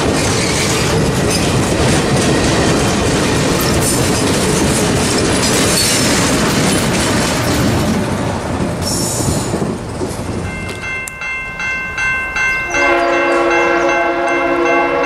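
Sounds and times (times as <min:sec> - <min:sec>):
diesel train rumbling past: 0:00.0 - 0:15.0
high ringing tone: 0:10.5 - 0:15.0
locomotive air horn: 0:12.7 - 0:15.0.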